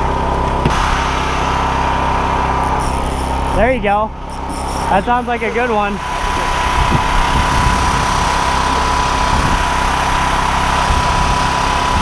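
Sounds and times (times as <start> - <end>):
small engine running: 0.0 - 12.0
thin high tone: 0.8 - 9.2.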